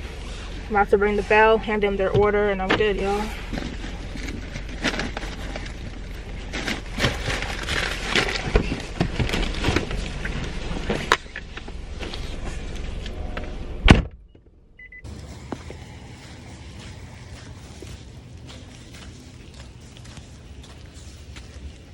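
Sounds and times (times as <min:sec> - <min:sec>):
rustling: 0:03.0 - 0:13.2.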